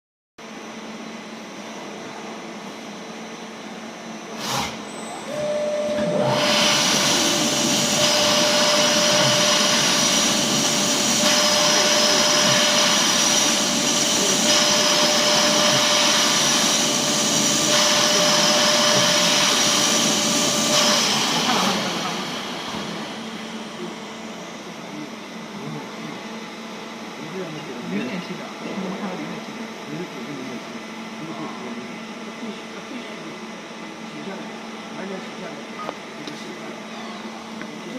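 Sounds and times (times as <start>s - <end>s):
loud machine noise with high whine: 0.4s - 37.9s
motor whine: 3.6s - 27.2s.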